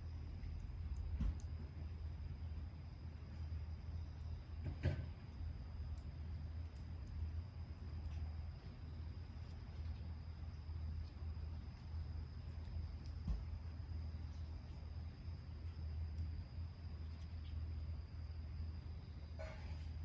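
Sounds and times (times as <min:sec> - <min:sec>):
insect pulsing chirp: 0:00.0 - 0:20.0
low steady rumble: 0:00.0 - 0:20.0.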